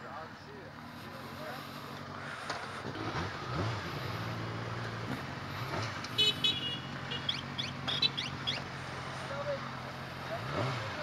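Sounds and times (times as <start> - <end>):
motorcycle engine idling: 0.0 - 11.0
high-pitched toots and chirps: 7.2 - 8.6.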